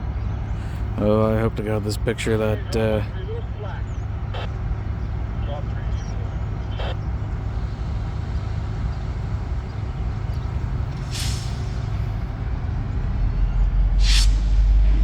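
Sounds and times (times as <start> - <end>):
diesel locomotive rumbling: 0.0 - 15.0
air brake hisses: 10.9 - 12.2, 14.0 - 14.9.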